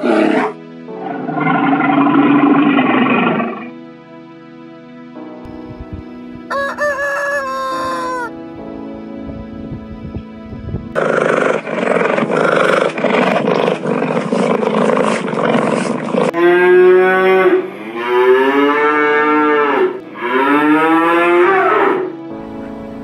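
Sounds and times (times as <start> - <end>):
cattle mooing: 0.0 - 3.7, 11.0 - 22.1.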